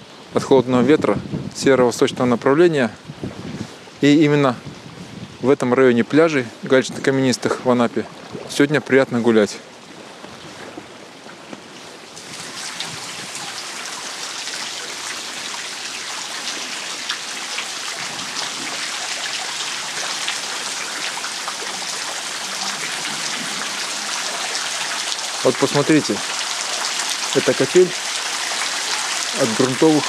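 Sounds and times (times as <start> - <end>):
water dripping onto stones: 12.2 - 30.0.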